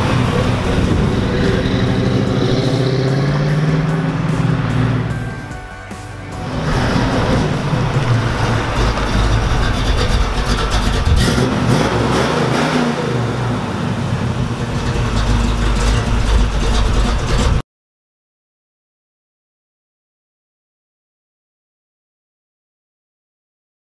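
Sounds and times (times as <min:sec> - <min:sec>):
car engine running at low speed: 0:00.0 - 0:17.6.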